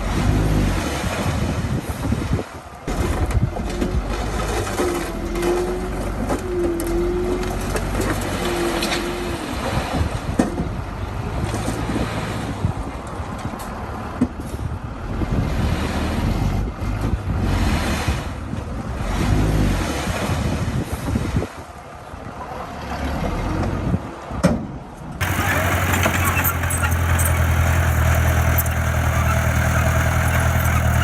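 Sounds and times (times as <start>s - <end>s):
diesel engine running: 25.2s - 31.0s
short machine whines: 25.2s - 31.0s.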